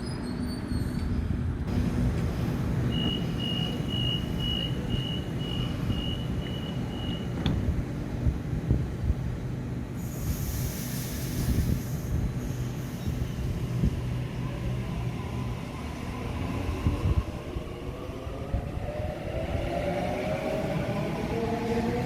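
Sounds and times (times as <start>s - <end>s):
electric train low rumble: 0.0s - 22.0s.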